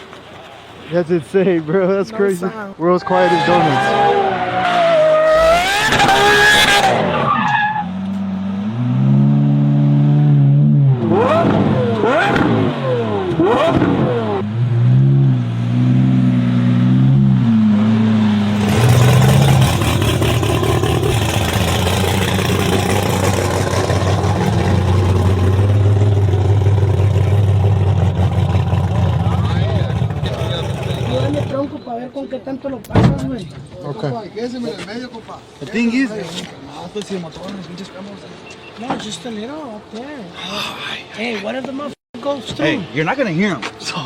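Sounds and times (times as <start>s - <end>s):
car engine revving: 3.2s - 31.8s.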